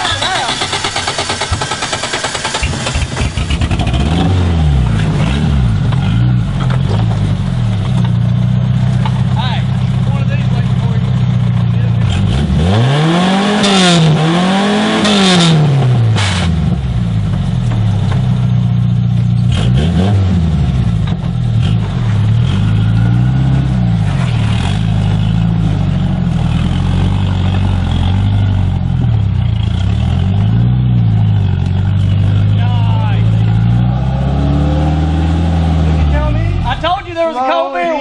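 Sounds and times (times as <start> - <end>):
engine revving in blips: 0.0 - 36.9
low engine drone: 15.0 - 37.0.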